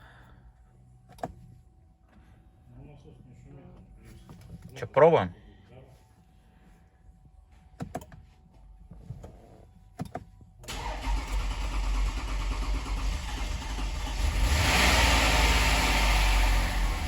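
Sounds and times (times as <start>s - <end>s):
starter motor cranking engine: 10.7s - 17.0s.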